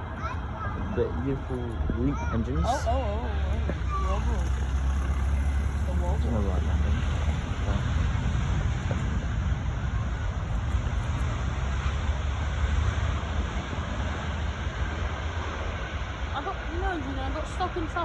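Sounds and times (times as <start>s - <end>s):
jet engine roar: 0.8s - 18.0s
deep rumble: 1.4s - 17.4s.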